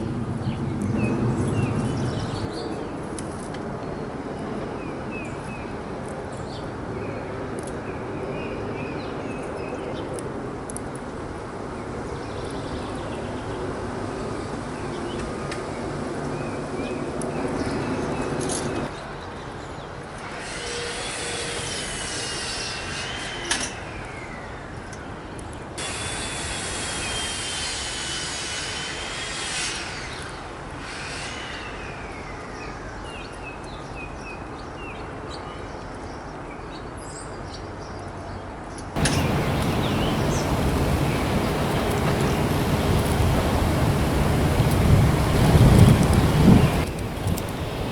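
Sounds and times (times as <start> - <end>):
wind noise on microphone: 0.0 - 2.5, 39.0 - 47.9
background hiss: 39.0 - 47.9
whistled bird calls: 39.0 - 47.9.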